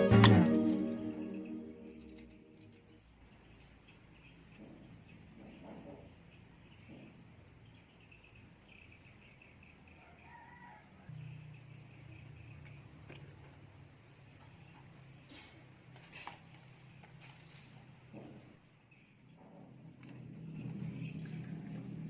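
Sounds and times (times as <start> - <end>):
faint insect chirping: 8.1 - 15.2.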